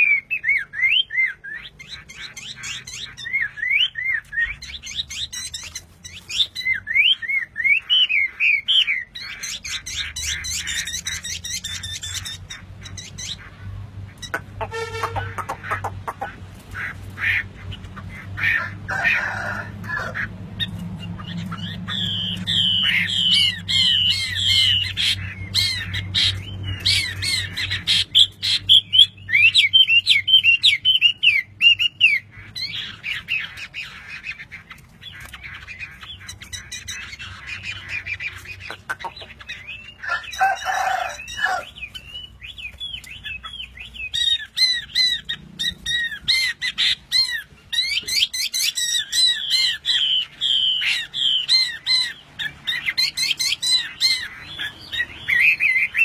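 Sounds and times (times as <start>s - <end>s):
bird singing chirps and whistles: 0.0s - 13.3s, 21.9s - 33.5s
harsh bird call: 0.0s - 56.0s.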